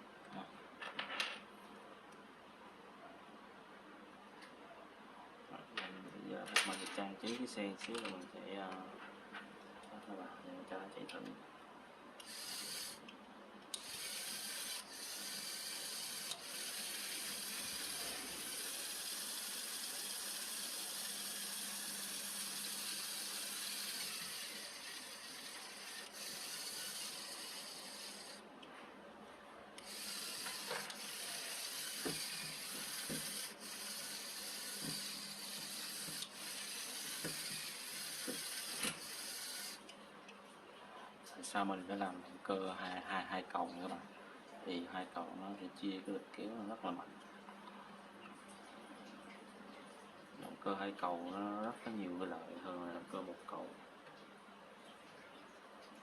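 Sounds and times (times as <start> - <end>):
small electric motors whirring: 12.2 - 13.1, 13.7 - 28.4, 29.8 - 39.9.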